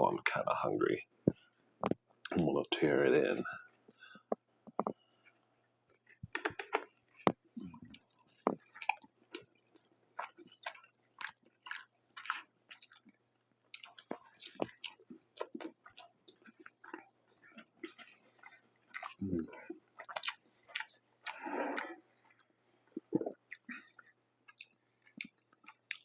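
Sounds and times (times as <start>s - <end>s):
mouth smacks and crunches: 4.2s - 26.0s
biting and chewing pizza: 6.8s - 26.0s.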